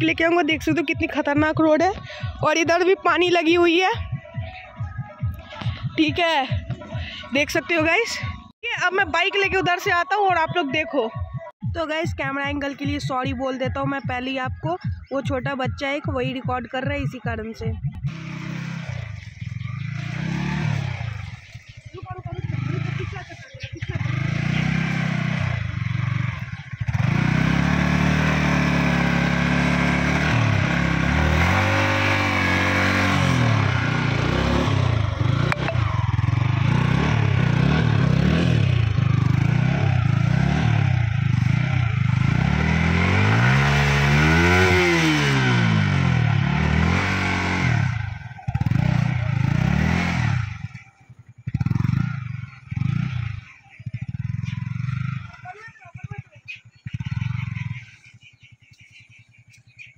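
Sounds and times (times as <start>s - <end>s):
motorcycle engine revving: 12.4s - 59.9s
wheel spinning in wet mud: 18.1s - 56.2s.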